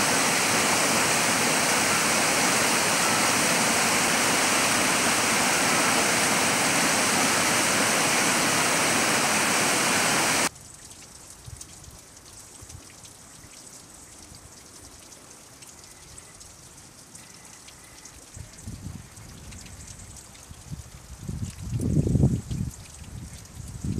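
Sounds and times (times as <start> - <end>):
waterfall rushing: 0.0 - 10.5
water trickling and dripping: 0.0 - 23.9.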